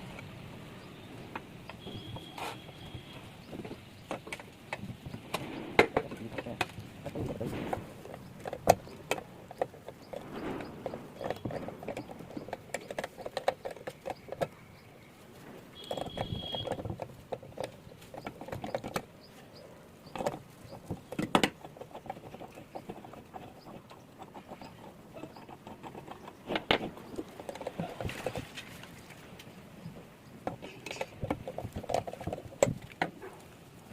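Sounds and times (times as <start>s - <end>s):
metal tools clicking and scraping: 30.6s - 32.6s.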